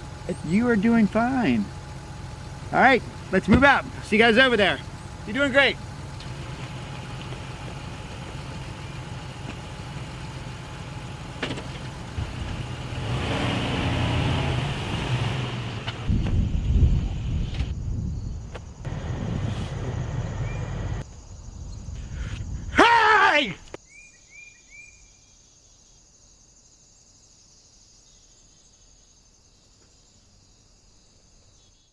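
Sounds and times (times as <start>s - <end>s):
crickets chirping: 0.0s - 13.2s, 16.4s - 31.9s
truck engine running: 0.0s - 17.7s, 18.7s - 21.0s.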